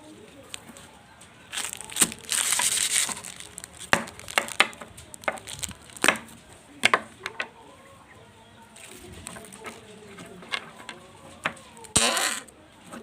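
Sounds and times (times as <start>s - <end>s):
slime squeezed by hand popping: 1.5s - 6.2s.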